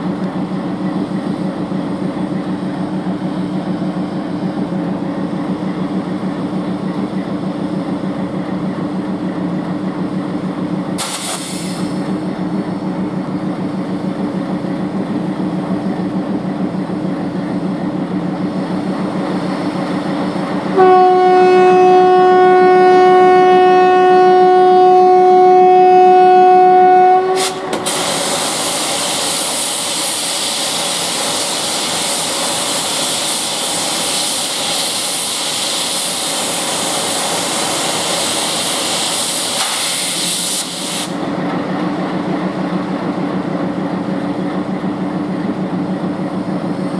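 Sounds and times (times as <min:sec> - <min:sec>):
diesel locomotive idling: 0:00.0 - 0:46.9
compressed air hissing: 0:11.0 - 0:12.2, 0:27.4 - 0:41.3
locomotive horn blast: 0:20.7 - 0:28.1.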